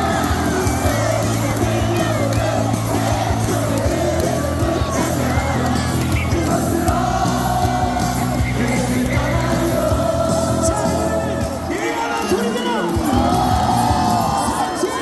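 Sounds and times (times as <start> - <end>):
amplified music: 0.0 - 11.9
stadium crowd singing: 0.0 - 15.0.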